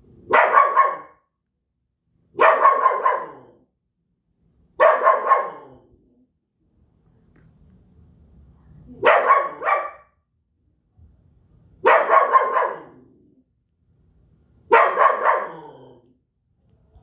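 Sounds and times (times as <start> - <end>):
dog barking loudly: 0.3 - 1.3, 2.4 - 3.6, 4.8 - 5.8, 9.0 - 10.2, 11.8 - 13.1, 14.7 - 16.0.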